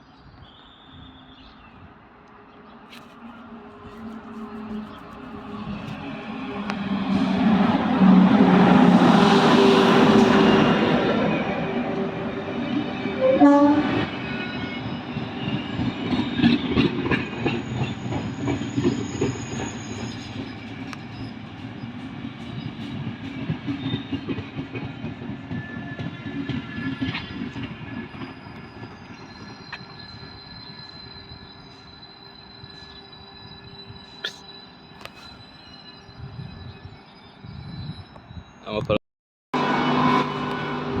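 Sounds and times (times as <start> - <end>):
train passing: 0.9 - 38.7, 39.6 - 41.0
faint high-pitched squeal: 25.5 - 39.0.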